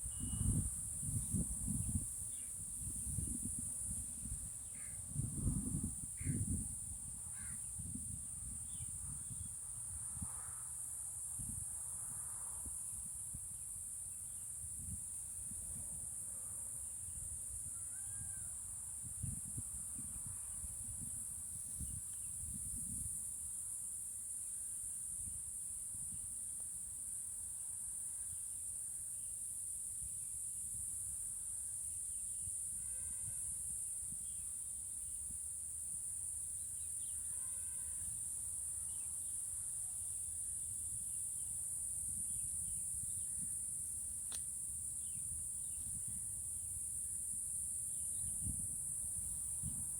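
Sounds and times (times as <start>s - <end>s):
wind buffeting microphone: 0.0s - 10.3s, 19.0s - 23.3s, 45.0s - 46.4s, 48.1s - 49.9s
insect chorus: 0.0s - 49.9s
faint bird calls: 7.3s - 7.6s.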